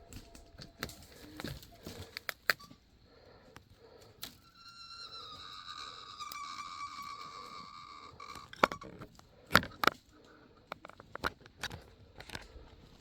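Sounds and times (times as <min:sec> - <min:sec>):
footsteps on dry sticks and leaves: 0:00.0 - 0:02.8.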